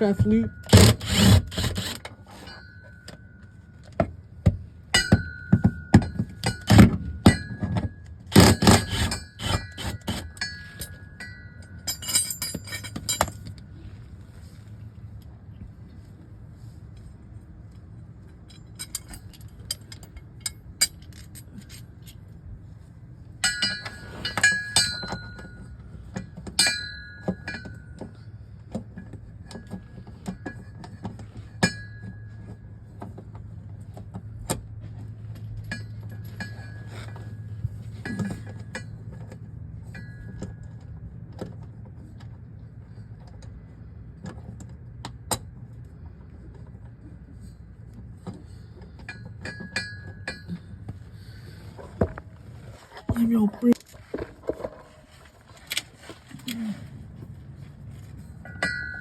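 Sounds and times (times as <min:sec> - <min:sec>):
steady low hum: 0:00.0 - 0:59.0
metal tools clinking: 0:05.0 - 0:13.7, 0:18.4 - 0:22.2.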